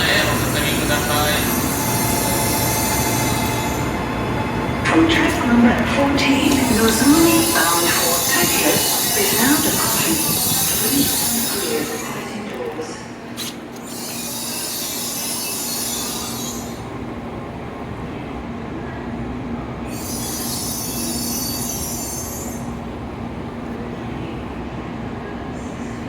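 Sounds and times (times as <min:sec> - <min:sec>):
train electric hum: 0:00.0 - 0:26.0
high hissing: 0:13.4 - 0:16.9.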